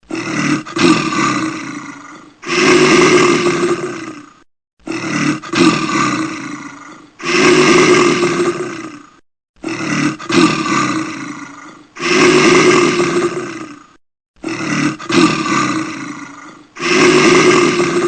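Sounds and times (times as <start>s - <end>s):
large animal roaring: 0.0s - 18.0s.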